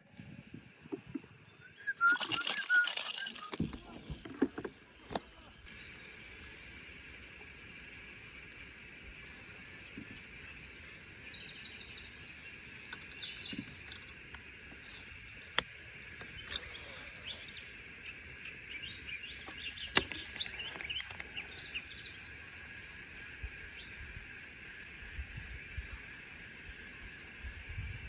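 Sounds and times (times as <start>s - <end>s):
birds chirping: 0.0s - 6.8s, 9.1s - 23.2s
steady high hiss: 0.0s - 27.8s.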